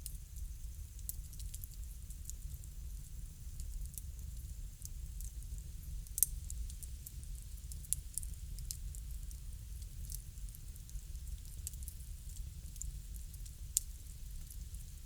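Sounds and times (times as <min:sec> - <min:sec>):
low fire rumble: 0:00.0 - 0:15.0
wood fire popping and snapping: 0:00.0 - 0:15.0.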